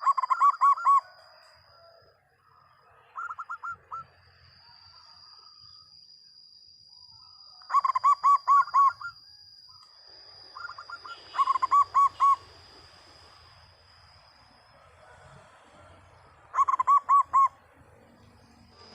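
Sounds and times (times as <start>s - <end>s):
dove cooing: 0.0s - 1.9s, 3.2s - 4.1s, 7.7s - 9.1s, 10.6s - 12.4s, 16.5s - 17.6s
faint high whine: 0.0s - 18.9s.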